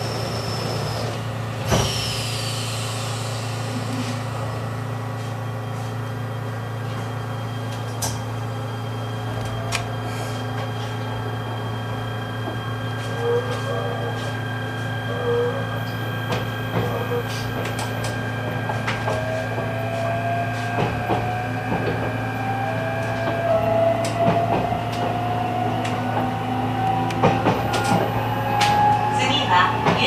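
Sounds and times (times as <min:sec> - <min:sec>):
electric train motor whine: 0:00.0 - 0:30.0.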